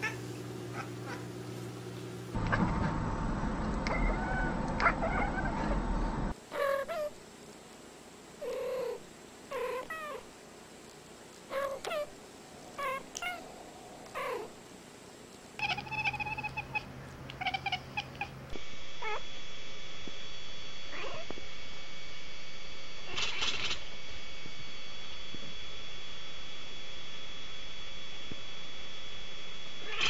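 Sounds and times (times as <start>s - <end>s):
background hum: 0.0s - 30.0s
cats chirping meows: 3.9s - 5.7s, 11.5s - 12.1s, 12.8s - 13.5s, 15.6s - 18.4s
cat chattering: 3.9s - 5.8s, 11.5s - 12.1s, 12.8s - 13.5s, 14.1s - 14.6s, 15.6s - 18.4s.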